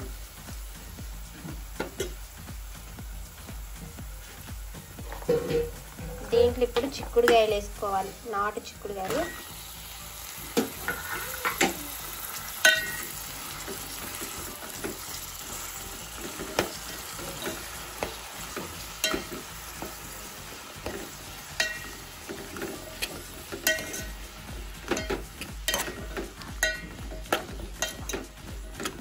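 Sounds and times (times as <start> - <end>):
beans sizzling in hot oil: 0.0 - 29.0
metal spoon stirring: 10.5 - 29.0
spoon clinking against pot: 12.6 - 13.2, 16.5 - 20.0, 20.8 - 24.2, 24.9 - 29.0.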